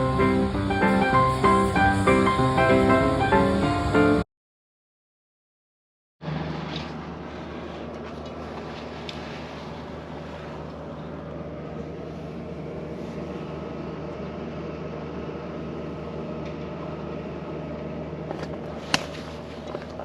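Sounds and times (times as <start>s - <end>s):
mechanical hum: 0.0s - 4.2s, 6.2s - 20.0s.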